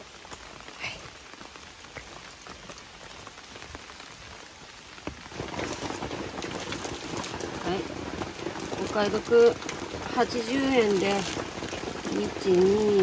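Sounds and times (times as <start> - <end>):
rain pattering on surfaces: 0.0 - 13.0.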